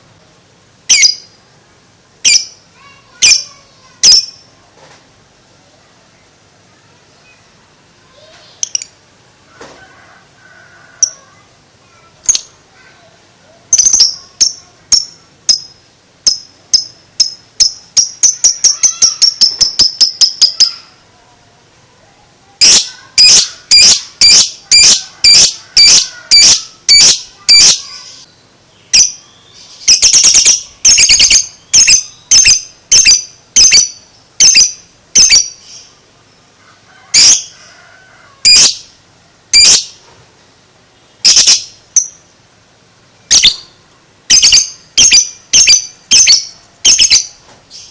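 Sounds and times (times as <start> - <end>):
lovebird shrill chirps: 0.9 - 1.3, 13.7 - 20.9, 22.6 - 28.2, 28.9 - 35.9, 38.4 - 38.9, 39.5 - 40.0, 41.2 - 42.2, 43.3 - 47.9.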